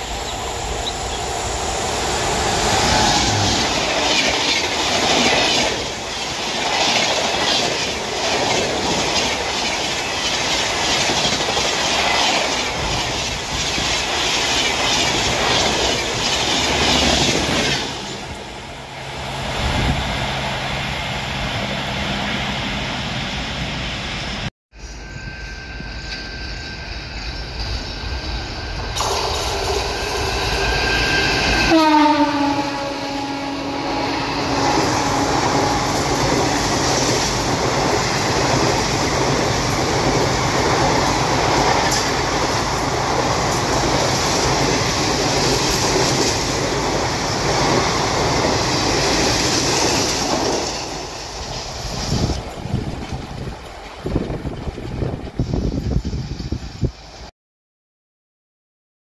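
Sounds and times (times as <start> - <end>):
train passing with clickety-clack: 0.0 - 57.3
train horn: 31.1 - 36.6.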